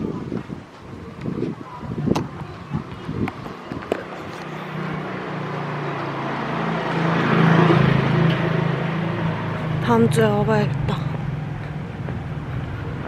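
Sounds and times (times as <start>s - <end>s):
vehicle engine passing: 3.1s - 13.0s.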